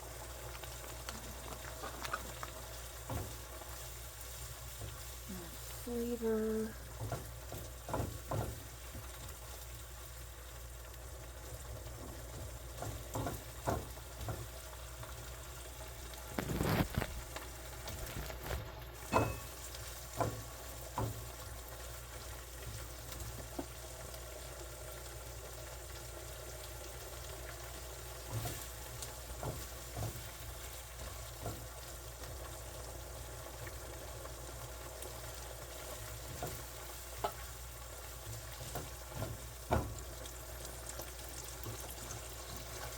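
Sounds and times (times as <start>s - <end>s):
food sizzling in a frying pan: 0.0s - 42.9s
utensil knocking against pan: 19.1s - 20.4s.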